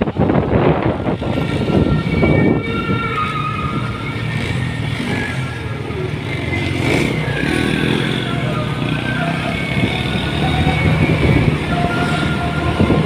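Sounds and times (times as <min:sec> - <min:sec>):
rough wind noise: 0:00.0 - 0:13.0
motorcycle engine running: 0:03.3 - 0:13.0.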